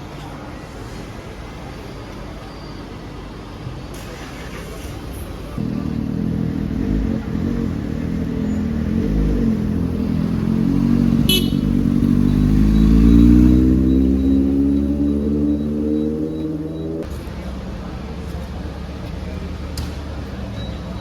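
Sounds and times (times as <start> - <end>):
motorcycle engine revving: 5.6 - 17.1.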